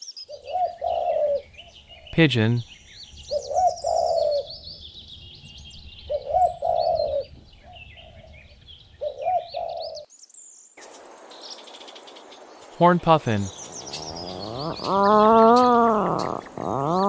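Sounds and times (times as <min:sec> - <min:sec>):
small birds chirping: 0:00.0 - 0:17.0
pigeon cooing: 0:00.4 - 0:01.4, 0:03.4 - 0:04.5, 0:06.1 - 0:07.3, 0:09.0 - 0:10.0, 0:13.8 - 0:17.0.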